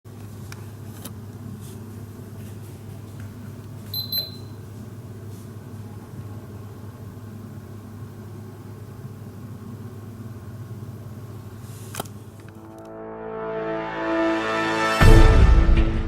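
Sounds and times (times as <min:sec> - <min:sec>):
low electrical hum: 0:00.1 - 0:13.1
high double electronic beep: 0:04.0 - 0:04.5.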